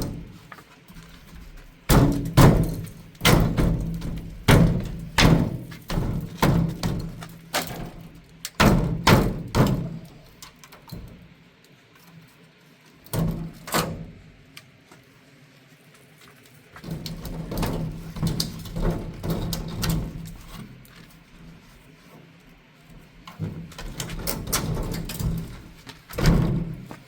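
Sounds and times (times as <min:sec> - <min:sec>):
irregular knocks and thuds: 0:01.1 - 0:10.2, 0:16.8 - 0:20.8, 0:23.0 - 0:27.0.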